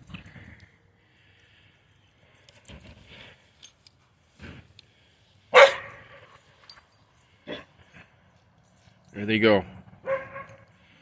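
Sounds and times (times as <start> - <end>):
dog barking loudly: 5.5 - 6.2, 10.0 - 10.6.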